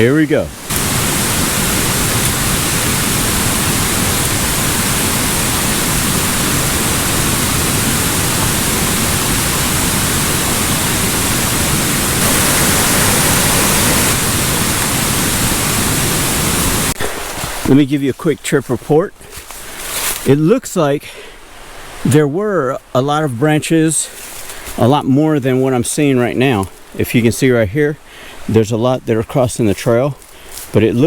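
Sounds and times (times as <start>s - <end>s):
creek water rushing over cascades: 0.5s - 17.6s.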